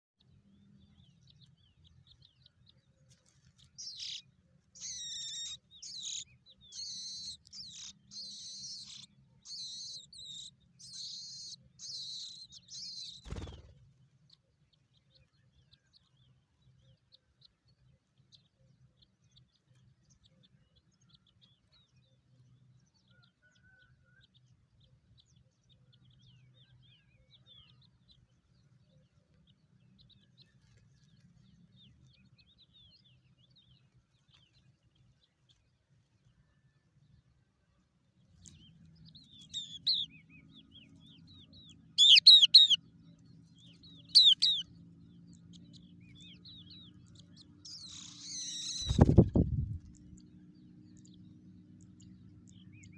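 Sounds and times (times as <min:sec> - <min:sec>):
nestling birds chirping: 0:00.4 - 0:18.2, 0:38.1 - 0:52.9.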